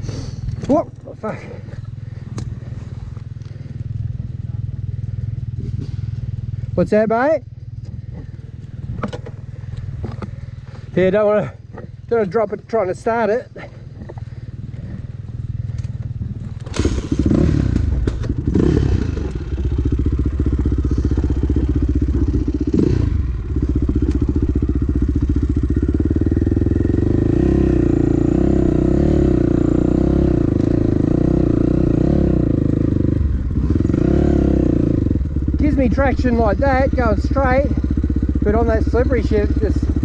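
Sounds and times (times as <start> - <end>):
dirt bike engine revving: 16.5 - 40.0.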